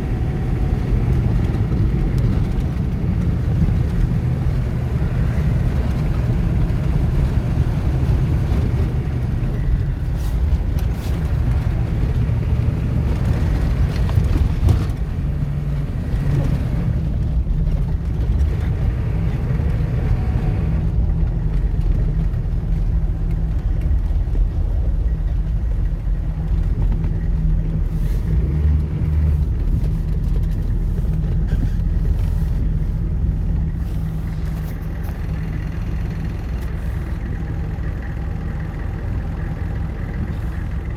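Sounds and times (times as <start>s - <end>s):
truck engine low drone: 0.0s - 40.9s.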